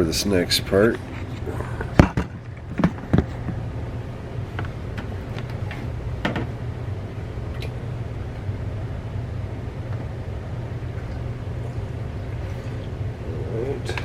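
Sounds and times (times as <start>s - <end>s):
steady low hum: 0.0s - 14.0s
plastic parts clicking and knocking: 0.9s - 3.6s.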